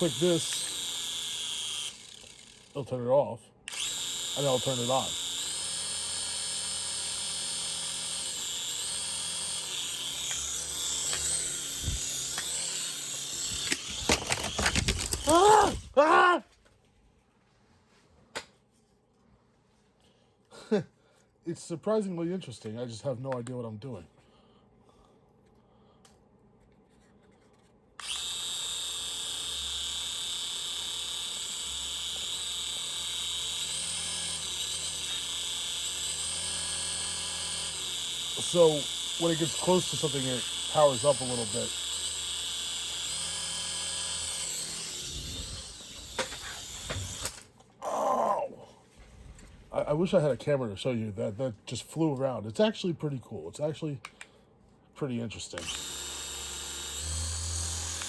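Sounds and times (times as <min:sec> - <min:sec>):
toy helicopter motor whirring: 0:00.0 - 0:02.8, 0:03.7 - 0:16.0, 0:28.0 - 0:47.5, 0:55.6 - 0:58.0
sharp clicks and knocks: 0:13.4 - 0:15.9.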